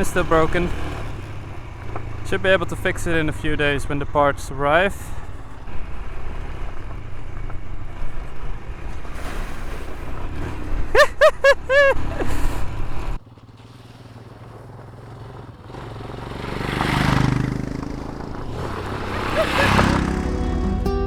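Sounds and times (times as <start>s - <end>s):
motorcycle engine: 0.0s - 21.0s
road noise: 0.0s - 21.0s
rising and falling calls: 18.5s - 20.9s.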